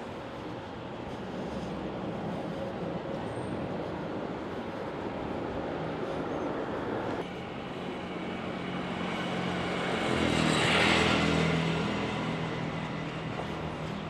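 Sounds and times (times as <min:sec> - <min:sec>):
vehicle passing by: 0:07.9 - 0:14.0.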